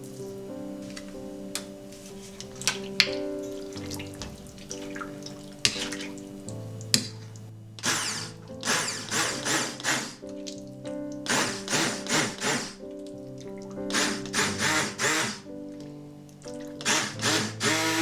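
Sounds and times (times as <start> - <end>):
soft background music: 0.0 - 18.0.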